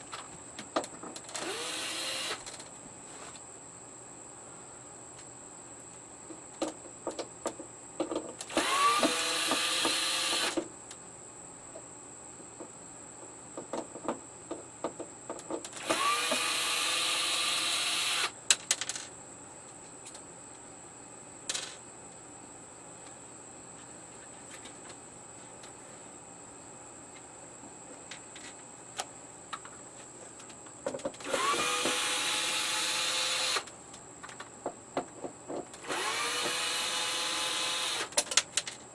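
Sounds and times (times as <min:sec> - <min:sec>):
screw gun motor spinning: 0:01.4 - 0:02.4, 0:08.5 - 0:10.6, 0:15.8 - 0:18.3, 0:31.2 - 0:33.7, 0:35.8 - 0:38.1.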